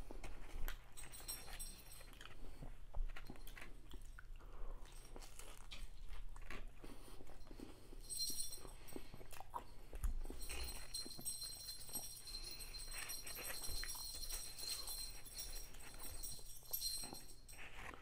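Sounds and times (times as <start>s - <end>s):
crunchy chewing and biting: 2.1s - 7.8s.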